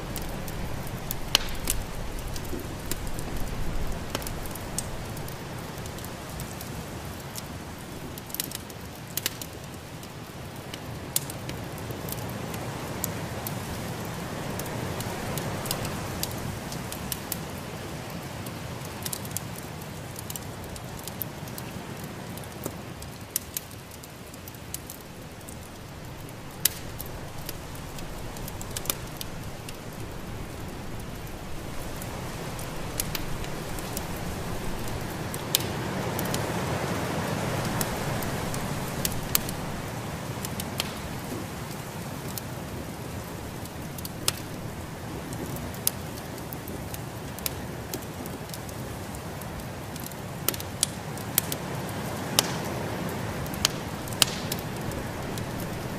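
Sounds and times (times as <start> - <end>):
wood fire crackling: 0.0 - 55.9
sharp pops of fire: 0.1 - 7.4, 22.0 - 36.5, 37.5 - 42.4, 43.3 - 48.7, 52.3 - 52.8, 53.4 - 55.9.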